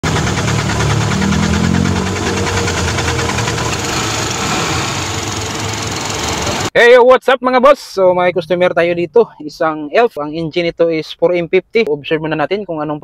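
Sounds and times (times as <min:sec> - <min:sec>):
diesel engine clattering: 0:00.0 - 0:06.7.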